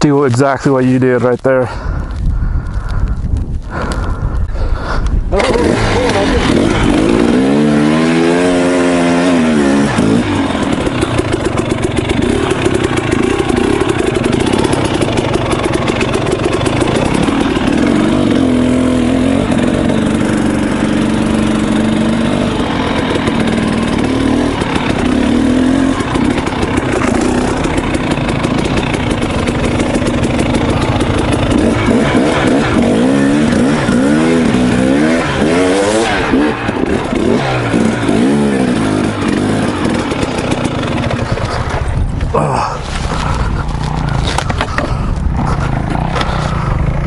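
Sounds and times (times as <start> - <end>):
dirt bike engine revving: 5.3 - 47.0.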